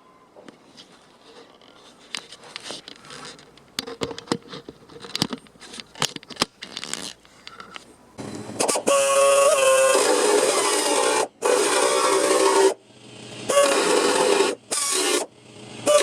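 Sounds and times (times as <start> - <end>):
clicks taps and light scraping: 0.4 - 8.0.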